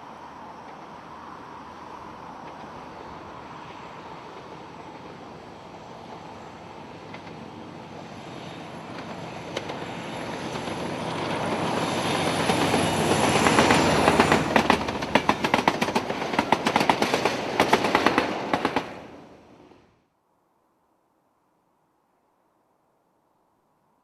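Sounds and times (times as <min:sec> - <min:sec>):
diesel train passing: 0:00.0 - 0:19.9
wheels clicking over rail joints: 0:08.7 - 0:19.0.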